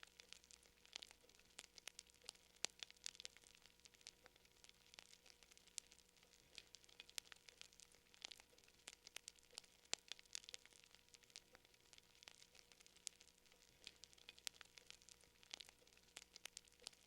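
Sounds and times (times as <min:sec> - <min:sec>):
fire crackling faintly: 0:00.0 - 0:17.0.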